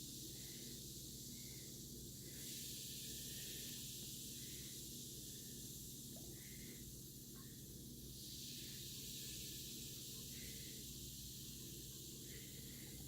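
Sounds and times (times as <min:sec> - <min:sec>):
fizzing hiss: 0:00.0 - 0:13.0
low steady hum: 0:00.0 - 0:13.0.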